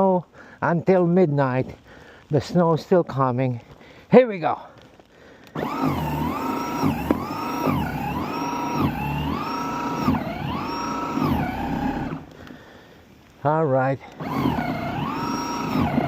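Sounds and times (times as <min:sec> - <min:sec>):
electric snow shovel motor whining: 0:05.5 - 0:12.6, 0:14.1 - 0:16.0.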